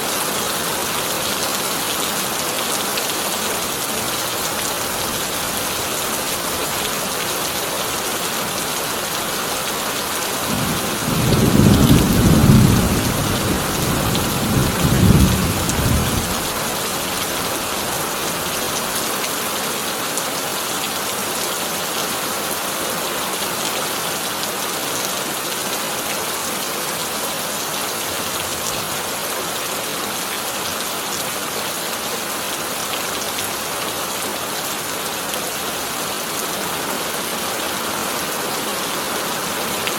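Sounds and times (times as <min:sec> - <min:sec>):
rain on a tin roof: 0:00.0 - 0:39.9
thunder rumbling: 0:10.5 - 0:16.6.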